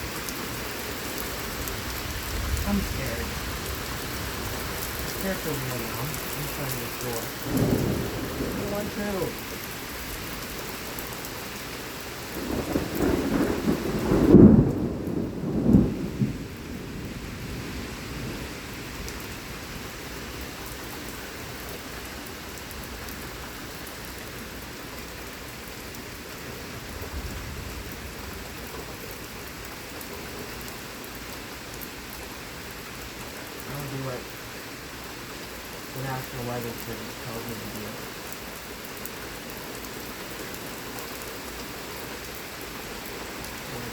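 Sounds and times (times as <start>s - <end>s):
heavy rain falling: 0.0s - 43.9s
rolling thunder: 1.5s - 9.4s, 12.3s - 19.3s, 26.8s - 28.8s.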